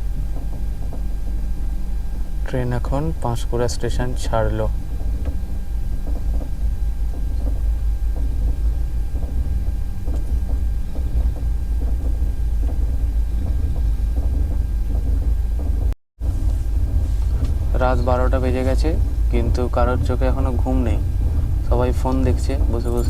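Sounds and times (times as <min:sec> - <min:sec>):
train rumbling on rails: 0:00.0 - 0:23.0
faint irregular clicks: 0:05.0 - 0:15.8.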